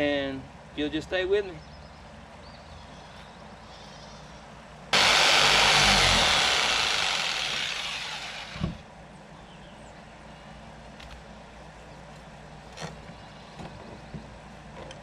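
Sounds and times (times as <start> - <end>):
power saw cutting wood: 5.0 - 8.8.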